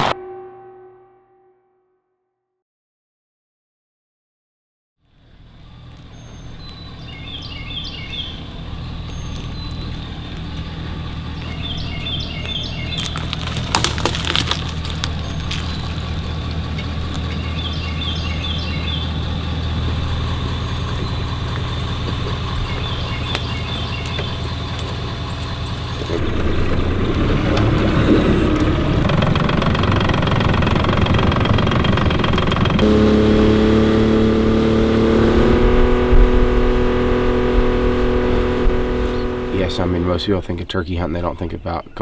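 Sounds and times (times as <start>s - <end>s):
bird chirping: 6.1s - 13.5s, 15.0s - 26.8s
motor running: 8.1s - 40.2s.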